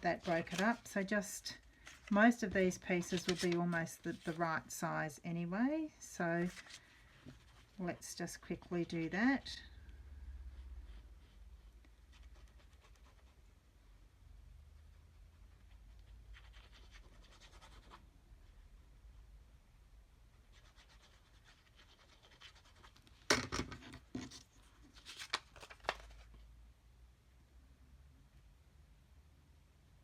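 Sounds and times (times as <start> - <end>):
paper crinkling and rubbing: 0.0 - 4.7, 6.4 - 8.2, 24.1 - 26.4.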